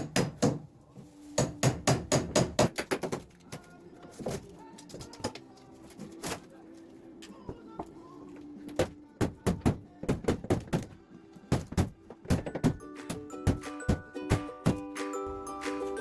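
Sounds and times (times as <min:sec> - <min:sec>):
hammer striking a wall: 0:00.0 - 0:00.7, 0:01.4 - 0:03.2, 0:08.8 - 0:14.8.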